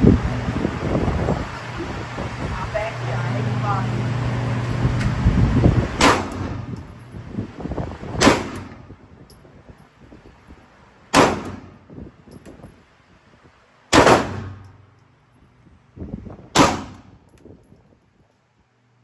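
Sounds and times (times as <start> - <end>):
pistol shots: 6.0 - 6.6, 8.2 - 8.8, 11.1 - 11.7, 13.9 - 14.7, 16.5 - 17.2.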